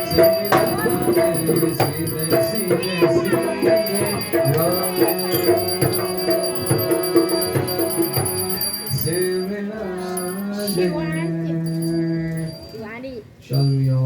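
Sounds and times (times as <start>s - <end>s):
people singing: 0.0s - 12.8s
jingling rattling percussion: 0.0s - 14.0s
steady held notes: 0.0s - 14.0s.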